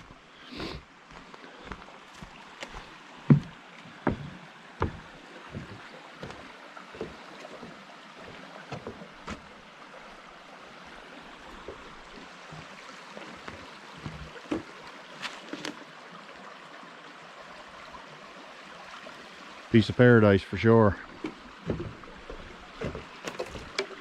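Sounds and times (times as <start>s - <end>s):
footsteps: 0.0s - 9.5s, 13.4s - 15.8s, 21.1s - 23.7s
brook water flowing: 0.0s - 24.0s.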